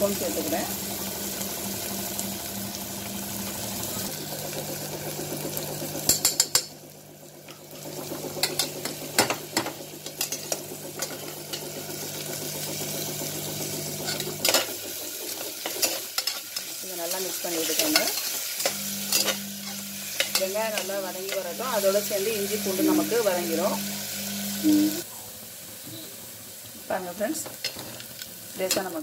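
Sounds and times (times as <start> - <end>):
onions sizzling in oil: 0.0 - 29.0
steel ladle scraping and clinking pot: 17.7 - 21.5.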